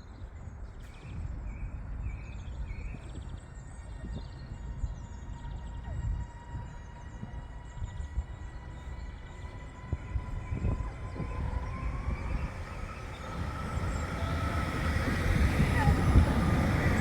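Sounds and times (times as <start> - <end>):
electric train approaching: 4.4 - 17.0.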